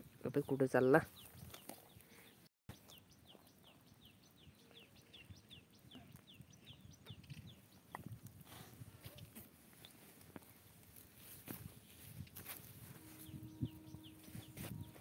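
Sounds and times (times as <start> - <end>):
bird chirping faintly: 13.0 - 15.0.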